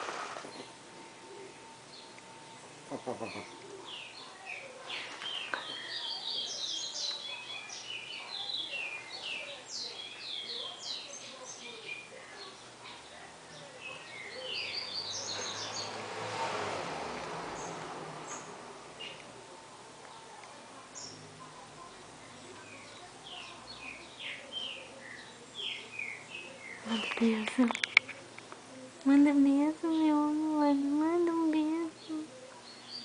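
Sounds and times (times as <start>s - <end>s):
bird singing: 0.2s - 16.0s, 17.5s - 33.0s.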